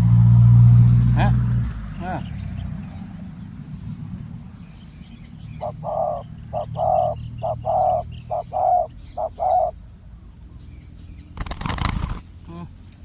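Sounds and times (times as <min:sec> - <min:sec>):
small birds chirping: 0:01.2 - 0:13.0
dove cooing: 0:05.5 - 0:09.8.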